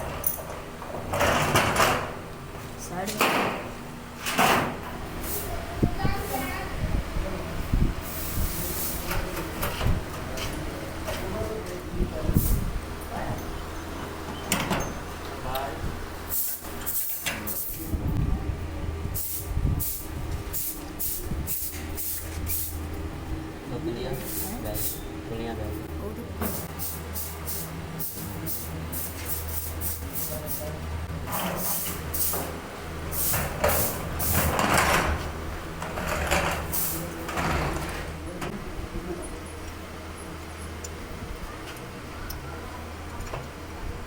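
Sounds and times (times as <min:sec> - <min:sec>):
steady low hum: 0:00.0 - 0:44.0
short bursts of hiss: 0:26.5 - 0:30.6, 0:33.1 - 0:34.3
metal parts scraping and clattering: 0:33.2 - 0:38.2.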